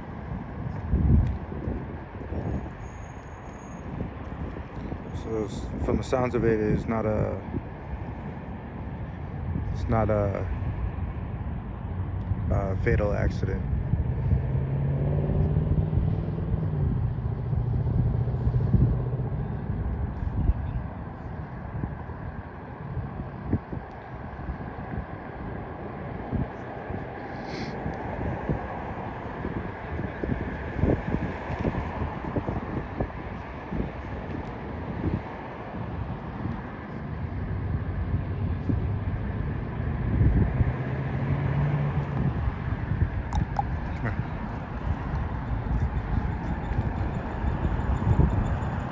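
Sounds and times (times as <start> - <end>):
street noise: 0.0 - 48.9
vehicle engine humming: 38.8 - 48.9.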